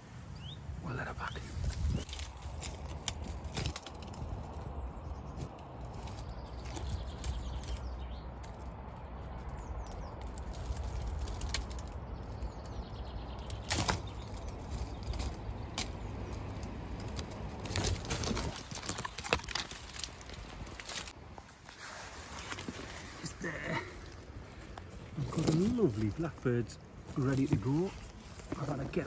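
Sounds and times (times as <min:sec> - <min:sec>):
brush rustling and snapping: 0:01.6 - 0:29.0
sharp twig cracks: 0:01.8 - 0:04.7, 0:05.4 - 0:12.7, 0:13.3 - 0:21.2.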